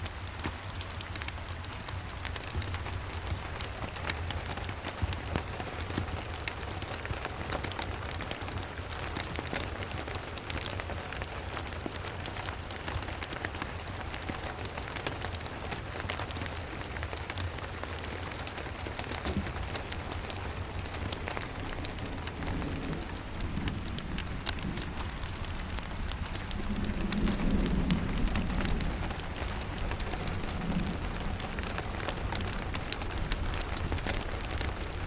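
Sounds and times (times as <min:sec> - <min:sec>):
rain pattering: 0:00.0 - 0:35.0
distant thunder rumble: 0:02.4 - 0:05.8, 0:19.0 - 0:35.0.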